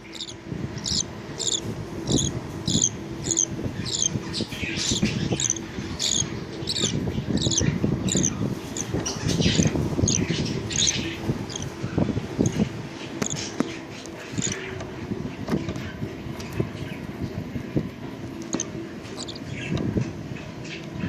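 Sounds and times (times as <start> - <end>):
budgerigars chirping: 0.0 - 14.8, 18.5 - 19.8.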